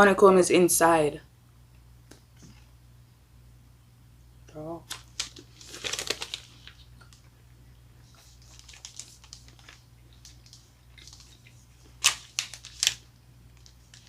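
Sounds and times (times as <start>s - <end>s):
chocolate bar crunching: 4.9s - 7.2s, 8.5s - 14.0s.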